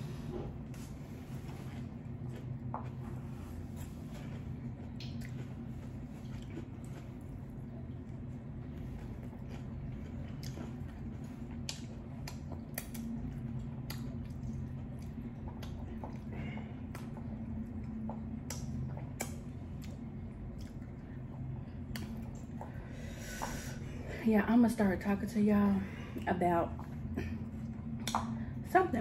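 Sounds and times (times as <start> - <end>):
steady low hum: 0.0 - 29.0
chewing crunchy tacos: 0.8 - 23.6.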